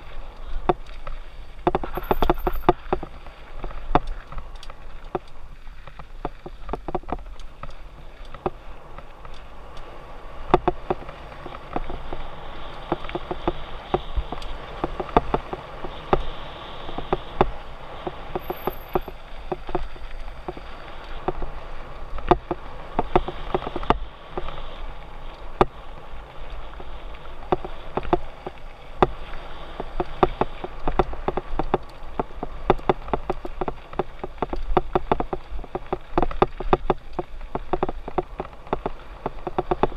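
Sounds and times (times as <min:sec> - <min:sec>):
low wind rumble: 0:00.0 - 0:39.9
bike rattling clicks and knocks: 0:00.3 - 0:24.6, 0:26.5 - 0:39.9
tyres crunching over dirt and stones: 0:25.3 - 0:39.9.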